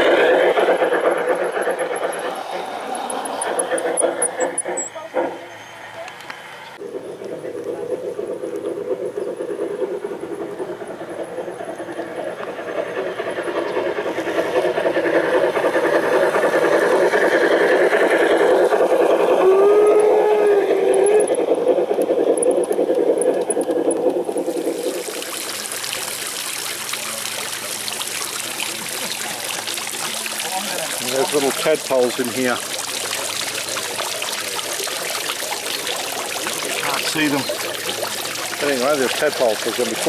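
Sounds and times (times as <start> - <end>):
model train wheels rumbling: 0.0 - 40.0
water trickling: 23.8 - 40.0.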